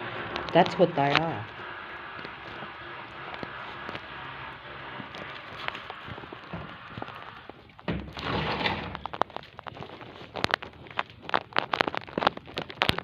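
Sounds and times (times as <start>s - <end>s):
dull thump: 7.8s - 9.0s.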